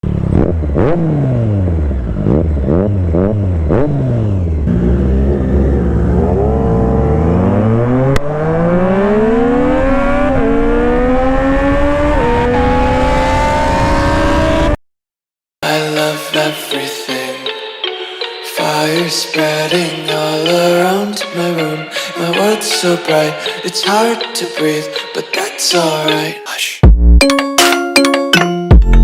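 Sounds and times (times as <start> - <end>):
motorcycle engine revving: 0.0 - 14.8.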